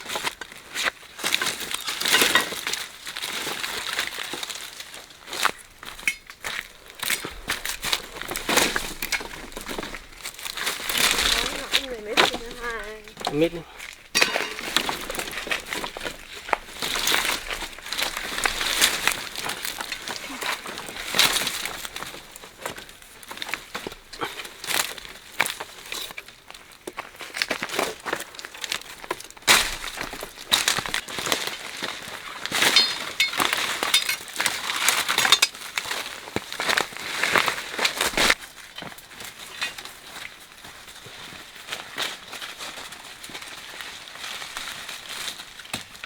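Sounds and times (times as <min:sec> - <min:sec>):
dry leaves and twigs rustling: 0:00.0 - 0:46.0.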